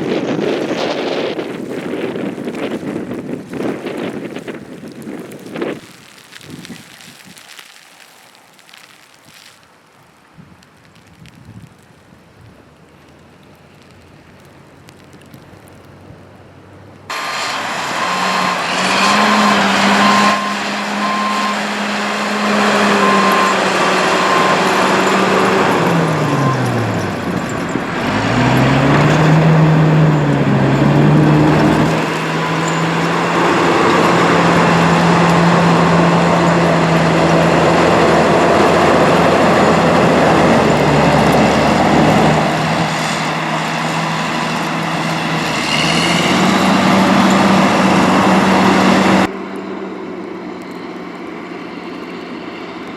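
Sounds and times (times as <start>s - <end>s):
heavy vehicle engine running: 15.0s - 52.9s
high beeping: 17.1s - 36.1s.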